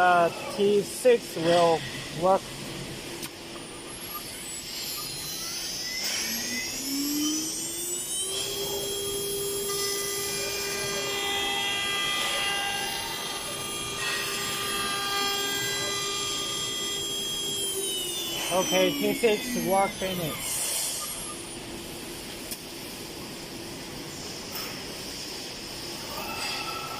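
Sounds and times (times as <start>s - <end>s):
router spindle whine: 3.6s - 22.4s.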